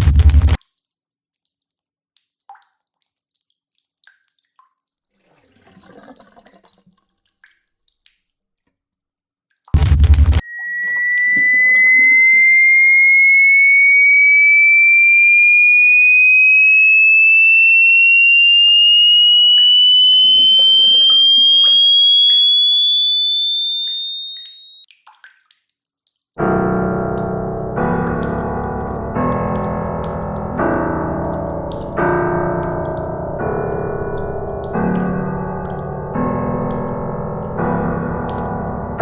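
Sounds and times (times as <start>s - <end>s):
electronic tone rising in pitch: 0.0s - 0.6s, 9.8s - 24.8s
electric piano chords: 26.4s - 39.0s.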